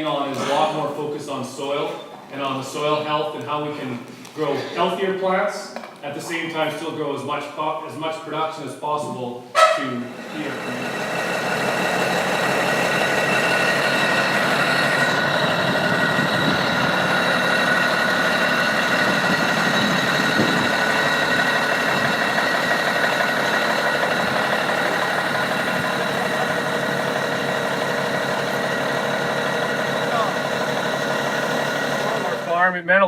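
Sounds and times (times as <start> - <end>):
high whining tones: 9.6 - 32.6
machine running: 9.9 - 32.6.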